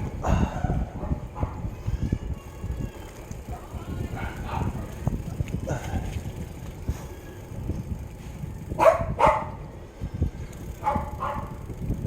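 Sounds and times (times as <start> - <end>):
dog barking: 4.2 - 4.8, 8.8 - 9.6, 10.8 - 11.6.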